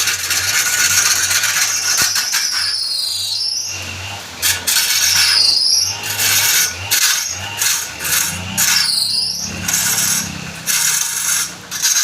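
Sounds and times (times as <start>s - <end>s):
lathe tool scraping wood: 0.0s - 12.0s
low motor hum: 3.4s - 12.0s.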